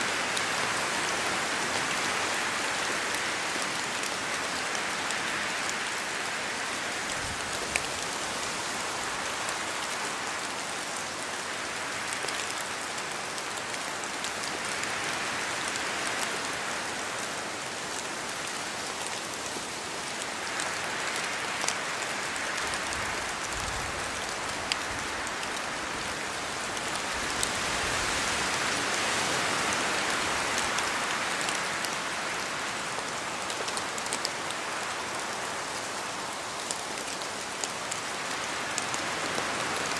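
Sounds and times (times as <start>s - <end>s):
rain falling through trees: 0.0s - 39.9s
wind gusts in leaves: 0.0s - 39.9s.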